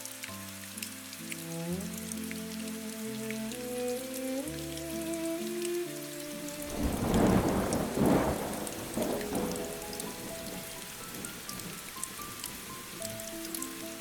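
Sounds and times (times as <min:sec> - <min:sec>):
steady rain: 0:00.0 - 0:14.0
thunder rumble: 0:06.6 - 0:13.0.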